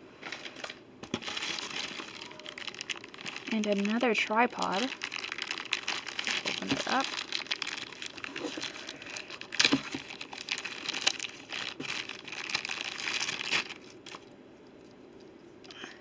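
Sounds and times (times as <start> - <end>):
plastic packaging crinkling: 0.2 - 15.0.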